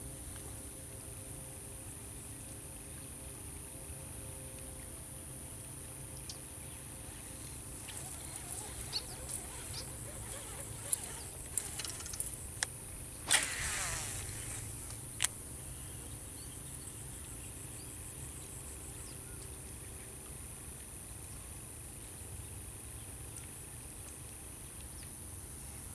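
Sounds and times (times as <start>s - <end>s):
insects droning: 0.0s - 20.6s
short noisy burst: 7.8s - 12.4s, 13.2s - 15.0s
sharp clicks: 7.8s - 15.4s.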